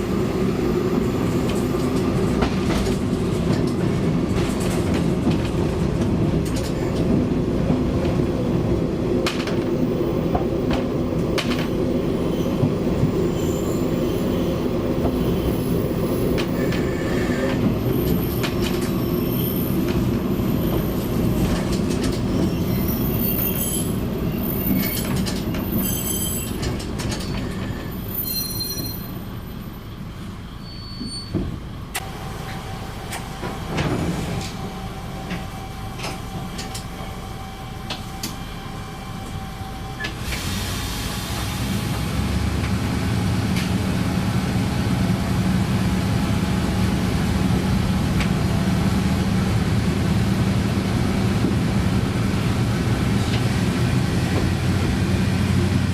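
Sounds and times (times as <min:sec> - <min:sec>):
railcar engine and rail noise: 0:00.0 - 0:55.9
high-pitched wheel squeal: 0:13.3 - 0:14.6, 0:27.6 - 0:29.2, 0:30.5 - 0:31.4.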